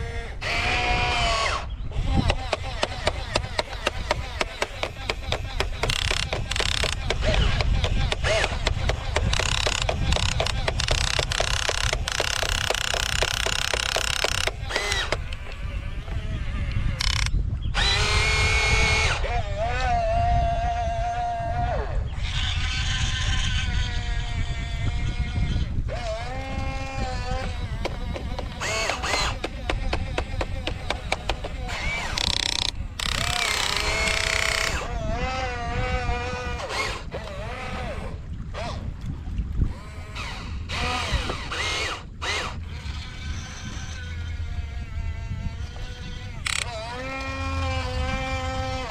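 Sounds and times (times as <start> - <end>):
small electric motors whirring: 0.0 - 39.0, 39.6 - 48.9.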